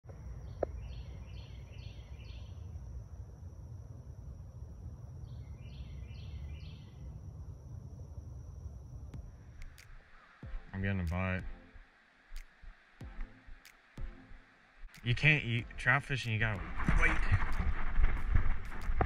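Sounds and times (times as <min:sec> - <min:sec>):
steady low rumble: 0:00.1 - 0:11.6, 0:12.6 - 0:19.0
thin high whine: 0:00.1 - 0:19.0
songbird calling: 0:00.4 - 0:02.6, 0:05.3 - 0:07.0.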